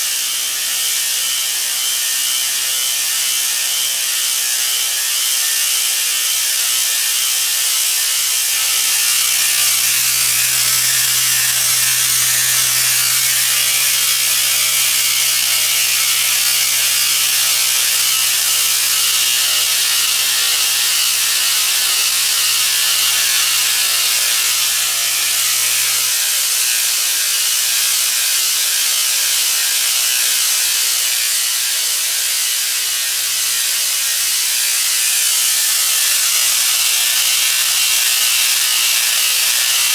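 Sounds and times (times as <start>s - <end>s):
belt cleaner hissing: 8.4s - 27.2s
low hum: 8.7s - 18.5s.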